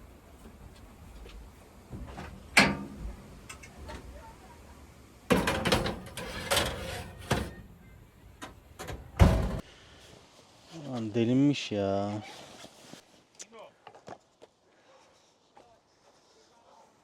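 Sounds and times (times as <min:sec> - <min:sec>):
knocks and clatters of handling: 0:05.3 - 0:07.6.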